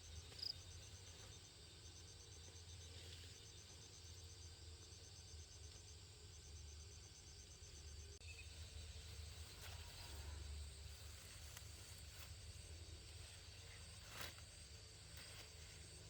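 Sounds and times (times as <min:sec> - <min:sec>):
pulsing insect trill: 0:00.0 - 0:16.0.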